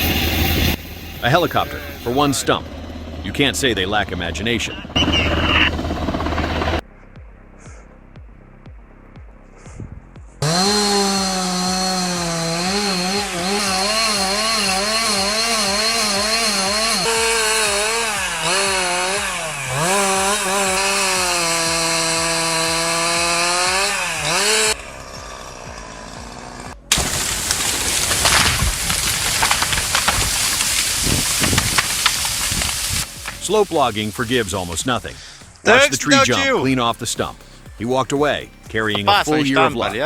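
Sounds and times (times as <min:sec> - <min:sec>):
rough noisy rushing: 0:00.0 - 0:06.8, 0:10.4 - 0:36.6
chainsaw cutting wood: 0:10.4 - 0:36.5, 0:38.9 - 0:40.0.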